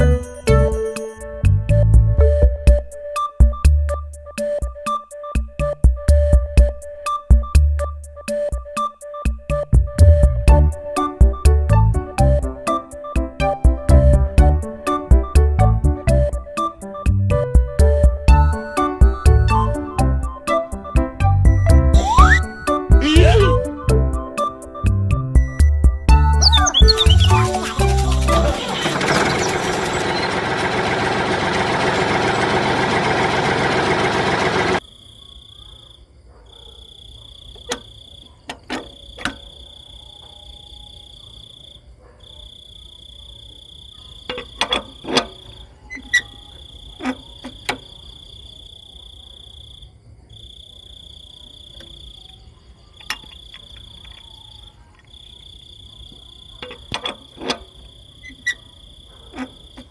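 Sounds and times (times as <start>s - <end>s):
insect trilling: 22.0s - 23.6s, 26.2s - 30.4s, 36.6s - 59.9s.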